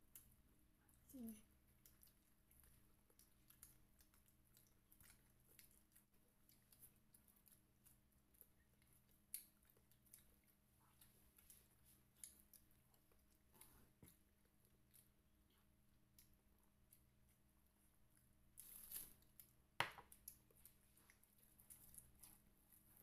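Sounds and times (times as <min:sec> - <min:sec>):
faint chewing: 0:00.0 - 0:23.0.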